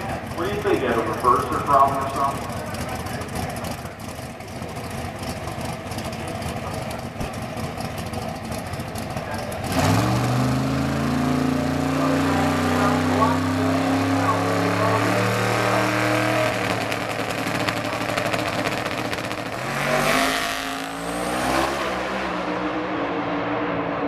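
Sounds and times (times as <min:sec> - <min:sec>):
car engine fast idle: 0:00.0 - 0:09.7
exhaust crackling: 0:00.0 - 0:22.7.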